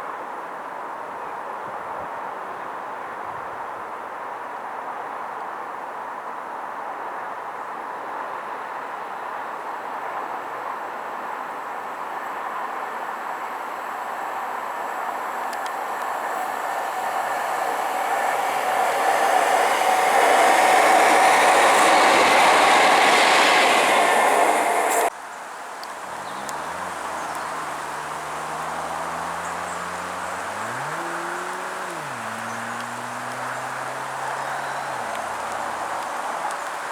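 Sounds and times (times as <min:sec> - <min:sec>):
train passing on rails: 0:11.6 - 0:36.9
low humming tones: 0:26.1 - 0:36.5.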